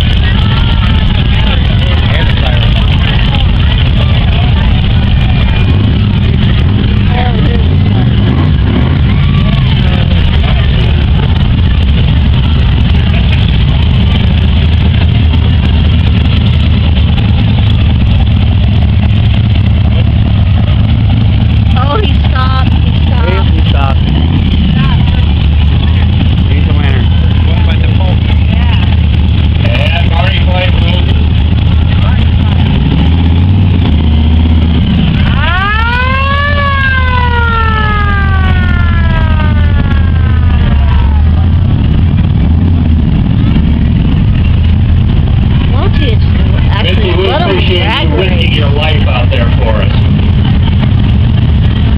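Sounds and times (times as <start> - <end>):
hot rod engines rumbling: 0.0 - 51.9.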